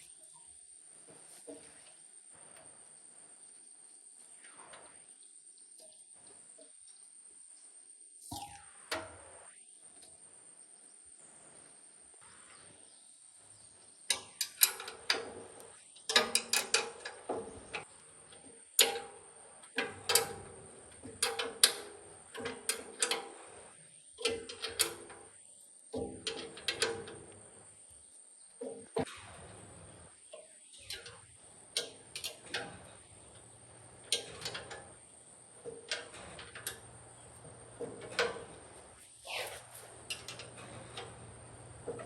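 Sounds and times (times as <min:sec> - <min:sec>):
metal tools knocking and clinking: 0:14.1 - 0:15.4, 0:16.1 - 0:17.8, 0:26.0 - 0:27.2, 0:33.9 - 0:35.0, 0:35.6 - 0:38.9, 0:39.9 - 0:42.0.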